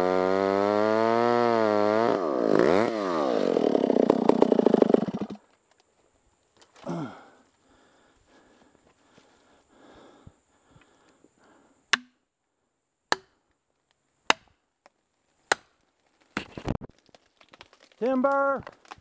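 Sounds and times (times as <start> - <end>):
tree cracking: 2.5 - 5.8, 15.8 - 19.0
sharp strikes on wood: 11.9 - 12.2, 13.1 - 13.4, 14.3 - 14.6.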